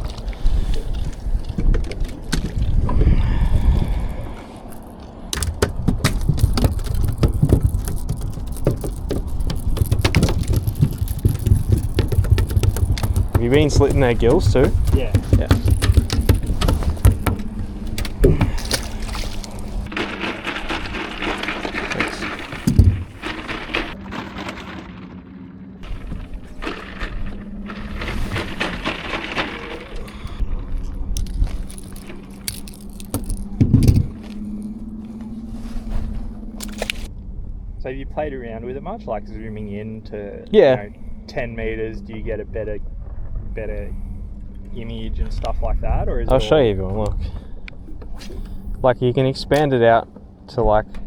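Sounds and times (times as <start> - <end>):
wind rumbling on microphone: 0.0 - 24.1, 25.8 - 51.0
heavy thump: 5.4 - 19.0
sharp knocks on boat: 5.4 - 19.0
steady low hum: 29.8 - 51.0.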